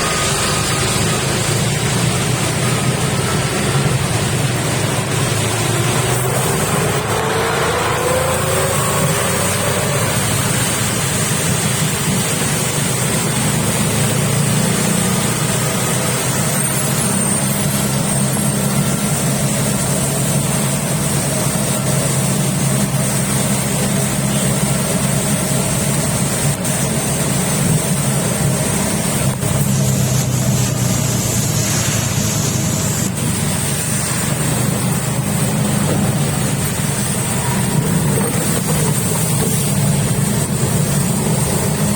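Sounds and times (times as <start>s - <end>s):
heavy rain: 0.0s - 41.9s
vehicle engine running: 0.0s - 41.9s.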